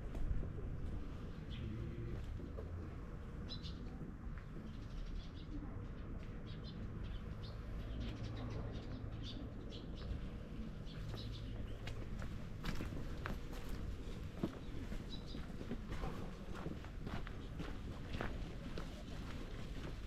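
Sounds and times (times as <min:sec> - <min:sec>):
small birds chirping: 0:03.4 - 0:12.3, 0:14.5 - 0:15.8.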